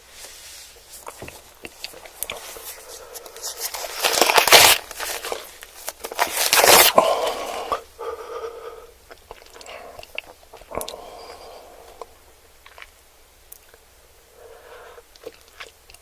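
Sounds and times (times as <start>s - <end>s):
soft chewing: 0.2s - 7.0s, 9.0s - 13.9s, 15.0s - 16.0s
crunching bites: 3.3s - 7.1s
mouth clicks: 9.1s - 12.9s.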